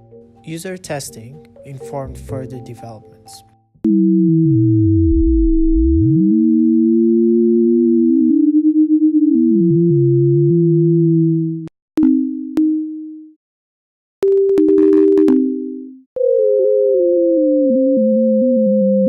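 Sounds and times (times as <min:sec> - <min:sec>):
sliding sine tones: 0:03.9 - 0:11.6.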